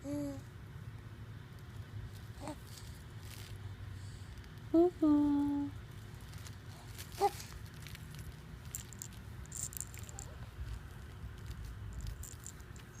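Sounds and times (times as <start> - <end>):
rustling and handling noise: 1.5 - 13.0.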